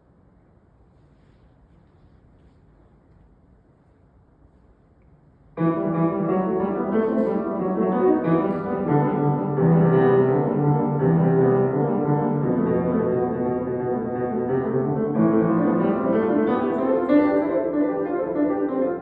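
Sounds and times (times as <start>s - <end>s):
solo piano classical music: 5.6s - 19.0s.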